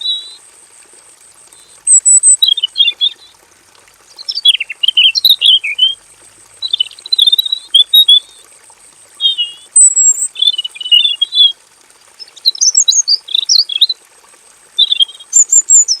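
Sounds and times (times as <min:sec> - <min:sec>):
bird singing warbling phrases: 0:00.0 - 0:00.4, 0:01.6 - 0:03.4, 0:04.1 - 0:06.0, 0:06.6 - 0:08.5, 0:09.2 - 0:11.6, 0:12.2 - 0:14.0, 0:14.8 - 0:16.0.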